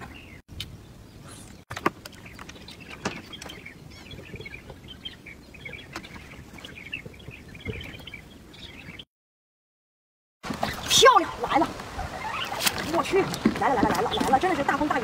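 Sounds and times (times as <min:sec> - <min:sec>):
outdoor background noise: 0:00.0 - 0:09.1, 0:10.4 - 0:15.0
small birds chirping: 0:00.0 - 0:09.1, 0:10.6 - 0:15.0.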